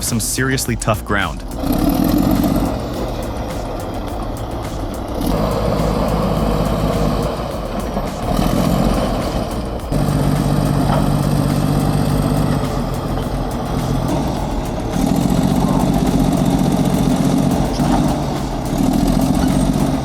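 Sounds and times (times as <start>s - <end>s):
bulldozer diesel engine working hard: 0.0s - 20.0s.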